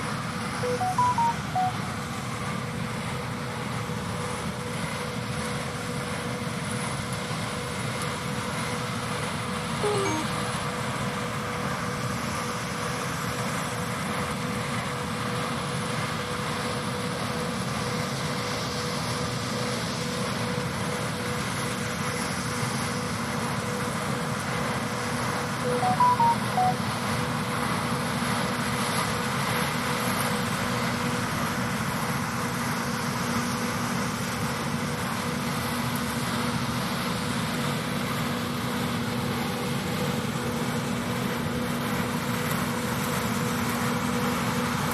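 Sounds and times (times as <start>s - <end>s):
short high chirps: 0.6s - 2.0s, 9.8s - 10.5s, 25.7s - 26.8s.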